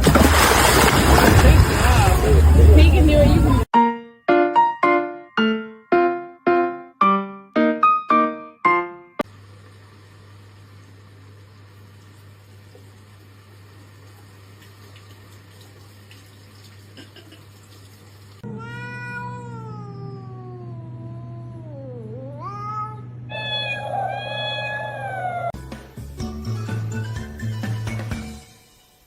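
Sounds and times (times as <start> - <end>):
music: 3.7 - 9.2, 25.6 - 29.0
cat yowling: 18.4 - 25.6.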